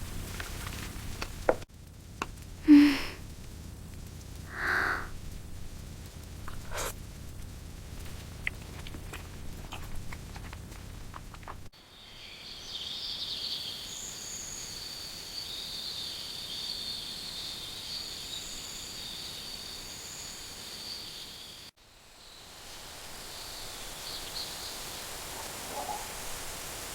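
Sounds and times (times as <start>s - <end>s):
sharp crackles and pops: 0.0s - 11.8s
insects chirring: 2.2s - 26.9s.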